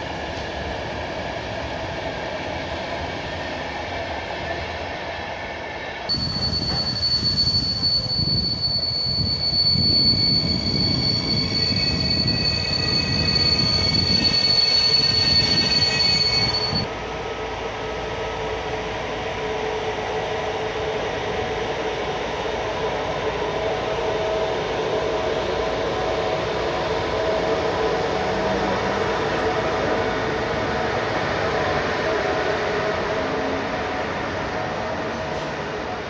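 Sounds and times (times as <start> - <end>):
electric train rumble and hum: 0.0 - 36.0
high-pitched wheel squeal: 6.1 - 16.9.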